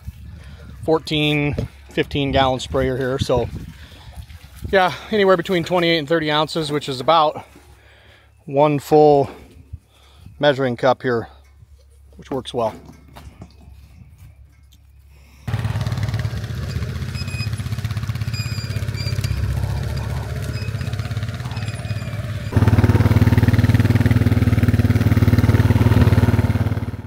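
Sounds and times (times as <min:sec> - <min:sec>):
engine running steadily: 0:11.2 - 0:27.0.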